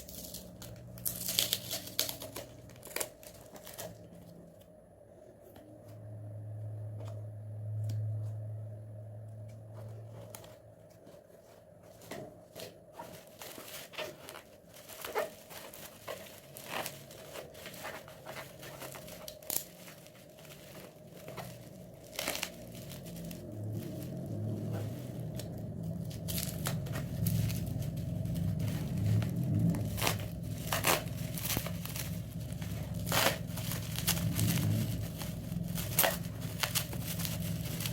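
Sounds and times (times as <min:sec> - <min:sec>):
packaging crinkling and tearing: 0:00.0 - 0:04.4, 0:12.0 - 0:37.9
low hum: 0:00.0 - 0:13.5, 0:17.1 - 0:37.9.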